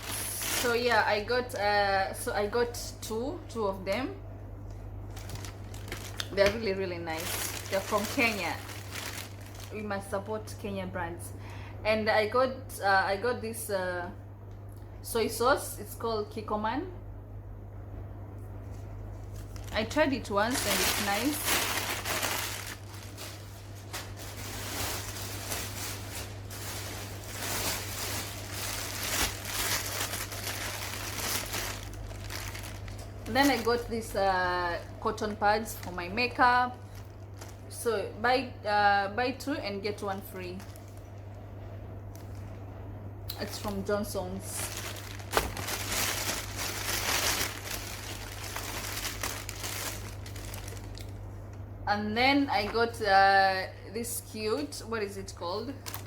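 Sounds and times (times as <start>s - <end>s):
plastic packaging rustling: 0.0s - 1.6s, 5.0s - 10.2s, 18.7s - 37.8s, 40.2s - 41.4s, 42.1s - 42.6s, 43.4s - 51.6s, 55.7s - 56.0s
faint steady hum: 0.0s - 56.0s.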